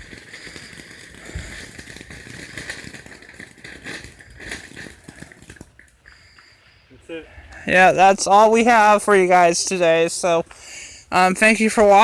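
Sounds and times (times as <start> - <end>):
firework crackling: 0.0 - 6.8.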